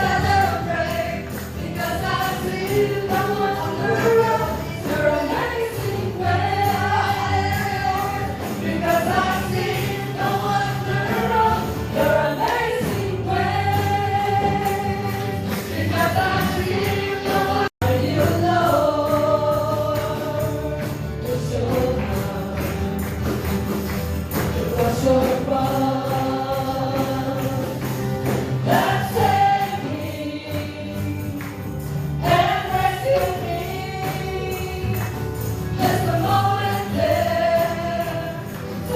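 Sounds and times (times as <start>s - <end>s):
band accompaniment: 0.0s - 38.9s
choir singing gospel song: 0.0s - 38.9s
tambourine: 0.0s - 38.9s.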